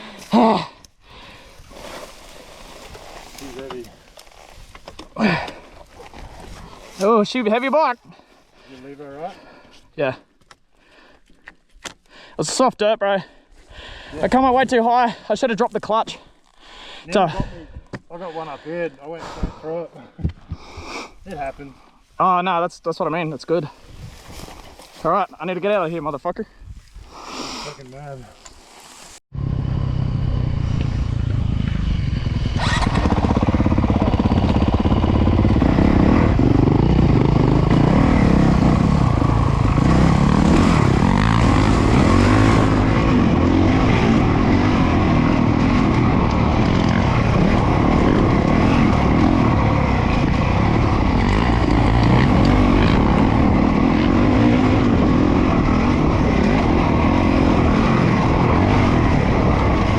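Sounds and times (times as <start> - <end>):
dirt noise: 0.0 - 12.6, 26.8 - 59.9
wind noise: 23.8 - 24.8, 26.4 - 27.2
motocross bike engine revving: 29.4 - 59.9.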